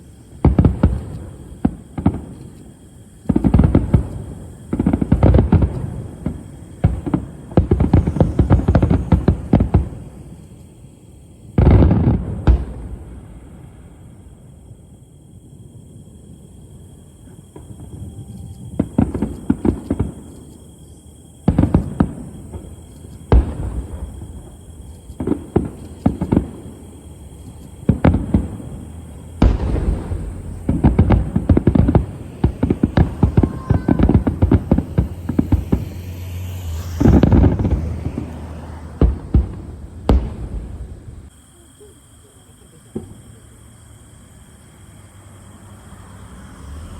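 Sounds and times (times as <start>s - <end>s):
fireworks bangs and crackles: 0.0s - 45.8s.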